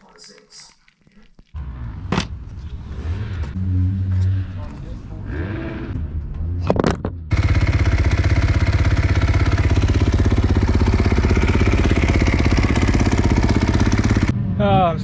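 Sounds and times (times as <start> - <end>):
motorcycle engine running loud: 7.3 - 14.8.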